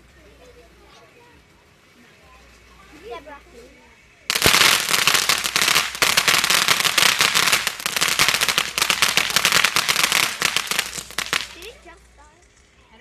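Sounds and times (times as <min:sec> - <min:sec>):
fireworks crackling: 0:04.3 - 0:12.8.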